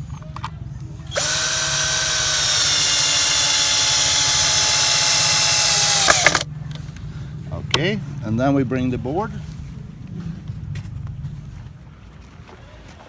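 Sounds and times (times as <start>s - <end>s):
power drill driving a screw: 1.1s - 6.4s.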